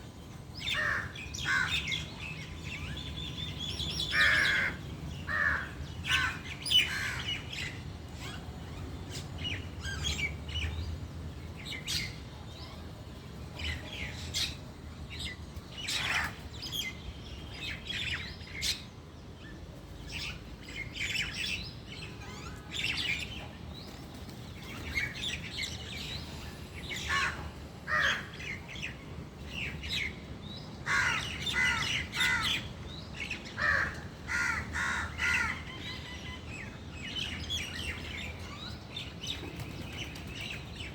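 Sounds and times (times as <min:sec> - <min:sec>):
birds calling: 0:00.6 - 0:12.3, 0:20.0 - 0:40.9.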